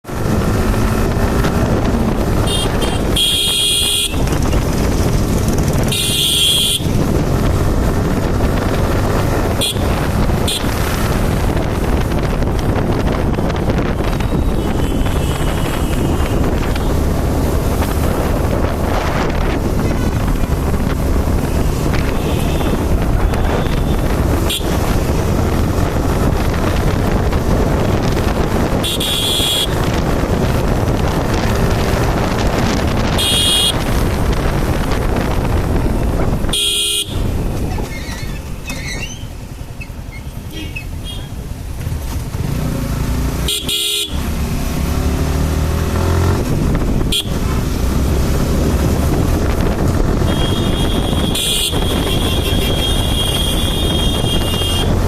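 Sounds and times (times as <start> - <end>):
wind rush: 0.0 - 3.2, 4.0 - 38.6, 44.1 - 55.0
motorcycle road noise: 0.0 - 55.0
motorcycle horn toots: 2.3 - 4.6, 5.8 - 7.0, 9.5 - 11.0, 13.4 - 17.0, 21.9 - 25.1, 28.7 - 30.0, 33.0 - 34.1, 36.4 - 37.4, 40.4 - 41.4, 43.4 - 44.3, 47.0 - 47.6, 50.2 - 55.0.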